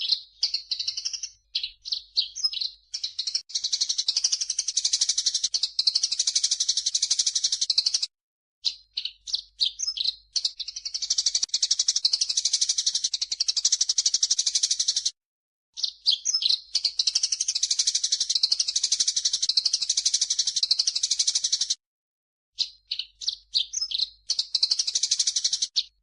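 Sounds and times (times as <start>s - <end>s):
fast rattling bird trill: 0.0s - 15.1s, 15.8s - 21.8s, 22.9s - 26.0s
bird chirps: 0.0s - 15.2s, 15.8s - 21.8s, 22.6s - 26.0s.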